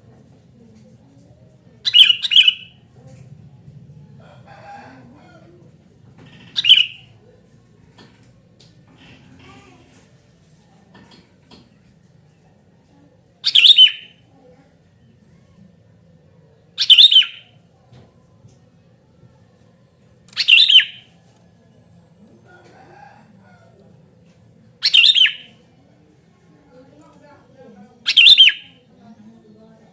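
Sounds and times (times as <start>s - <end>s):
bulbul calling: 1.9s - 2.8s, 6.5s - 7.1s, 13.4s - 14.1s, 16.8s - 17.5s, 20.4s - 21.0s, 24.8s - 25.5s, 28.1s - 28.7s.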